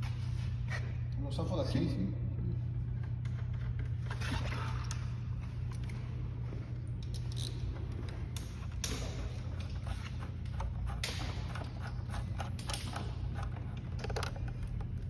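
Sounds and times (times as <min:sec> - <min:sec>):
steady low hum: 0:00.0 - 0:15.0
clutch cable scraping and clicking: 0:08.0 - 0:15.0.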